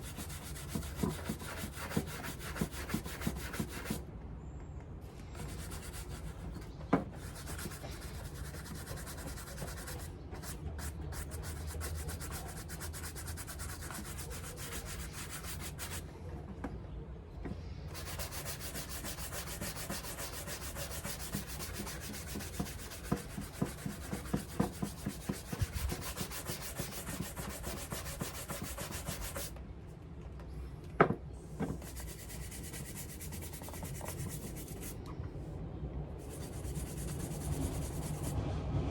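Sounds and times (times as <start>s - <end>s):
brush rubbing shoe leather: 7.3s - 16.0s, 17.9s - 29.5s, 31.8s - 35.0s, 36.2s - 38.3s.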